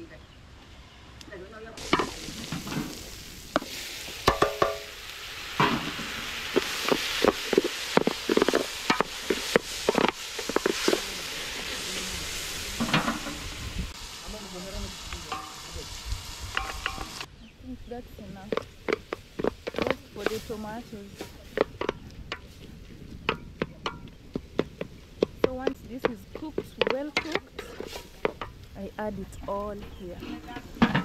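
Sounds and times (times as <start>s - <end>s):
food frying and sizzling: 1.8s - 31.0s
spoon knocking and scraping pot: 3.6s - 4.9s, 6.6s - 11.0s, 23.2s - 28.6s.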